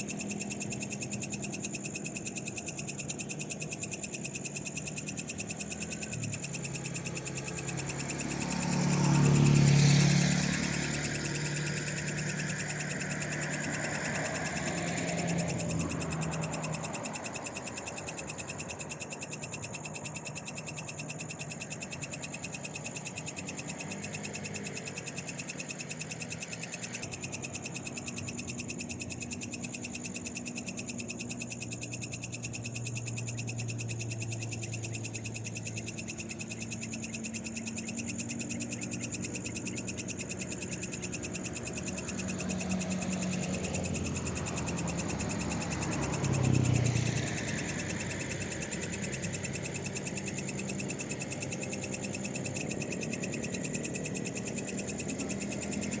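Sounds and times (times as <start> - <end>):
frogs calling: 0.0 - 56.0
vehicle passing: 5.9 - 18.6, 32.2 - 56.0.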